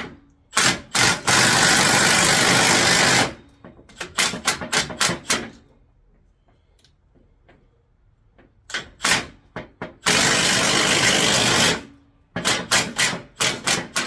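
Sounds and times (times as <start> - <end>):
power tool running in bursts: 10.1 - 11.8.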